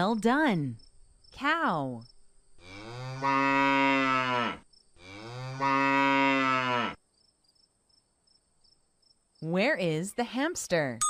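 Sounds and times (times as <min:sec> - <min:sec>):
cow mooing: 0:02.6 - 0:07.0.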